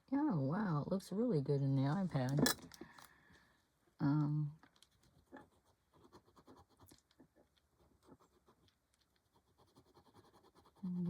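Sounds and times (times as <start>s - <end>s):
pencil scratching on paper: 5.2s - 7.1s, 7.8s - 11.0s.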